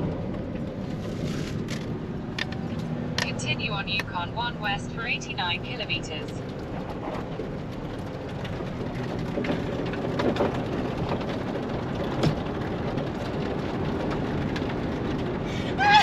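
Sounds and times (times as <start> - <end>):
vehicle driving rumble: 0.0 - 16.0
raindrops ticking: 5.1 - 15.7
rain rushing: 6.4 - 16.0.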